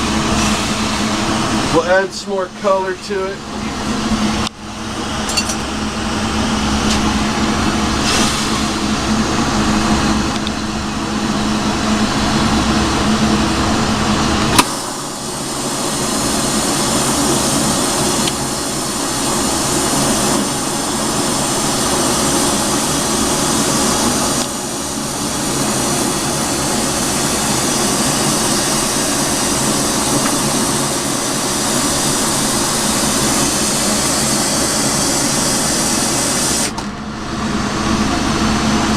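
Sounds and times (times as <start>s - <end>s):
torch flame hissing: 0.0s - 2.0s, 5.9s - 10.3s, 14.2s - 36.8s
low hum: 3.3s - 38.9s.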